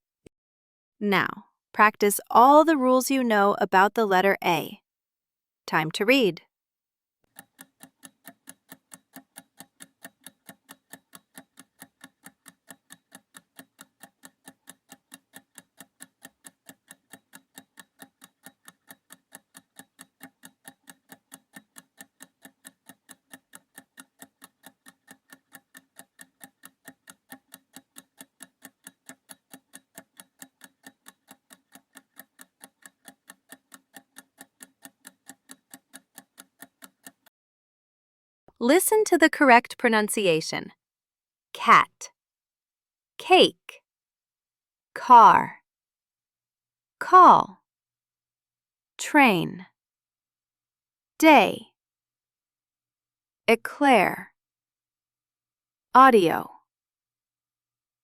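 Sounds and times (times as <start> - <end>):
clock ticking: 7.3 - 37.3.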